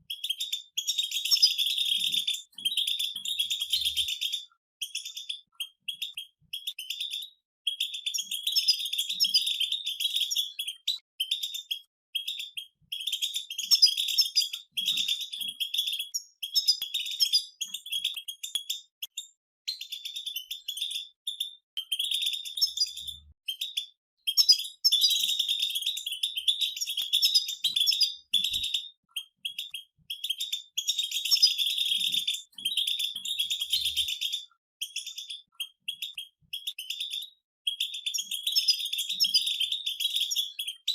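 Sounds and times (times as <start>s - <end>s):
goldfinches twittering: 0.1s - 7.2s, 7.8s - 18.5s, 19.8s - 28.8s.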